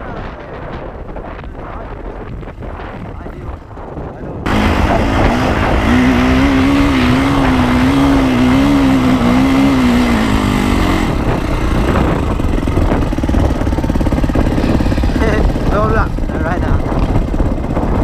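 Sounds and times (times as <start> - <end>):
dirt bike engine revving: 4.4 - 18.0.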